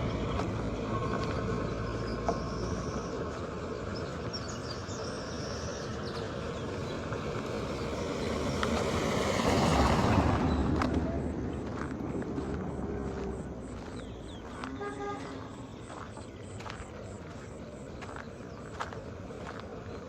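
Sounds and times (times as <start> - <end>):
street traffic: 0.0 - 20.0
vehicle passing close by: 5.7 - 18.6.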